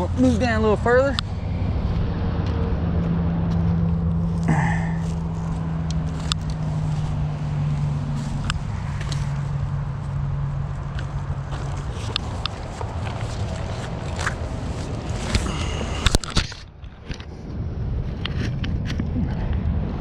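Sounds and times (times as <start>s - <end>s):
steady low hum: 0.0s - 16.2s
footsteps on creek bank: 1.2s - 16.2s
rustling: 3.6s - 17.2s.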